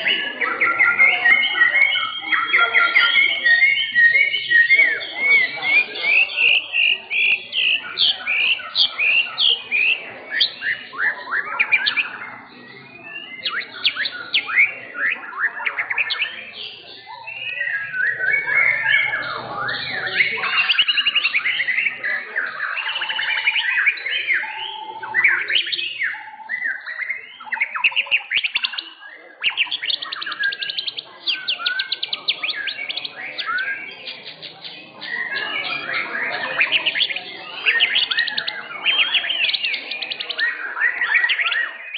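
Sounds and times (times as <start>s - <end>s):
songbird singing: 0.0s - 41.9s.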